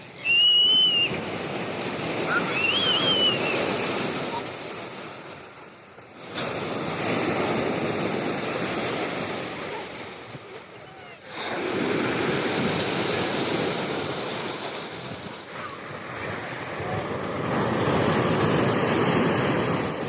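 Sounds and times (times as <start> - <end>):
waves breaking on shore: 0.0 - 20.0
high wavering calls: 2.3 - 3.7.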